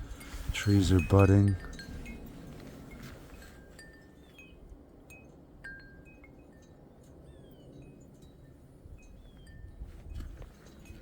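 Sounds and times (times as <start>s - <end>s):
songbirds whistling: 9.1s - 9.8s.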